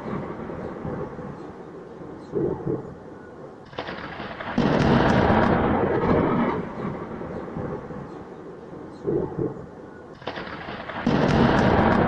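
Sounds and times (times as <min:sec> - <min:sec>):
thunder rumbling and cracking: 0:00.0 - 0:01.4, 0:03.7 - 0:08.1, 0:10.2 - 0:12.0.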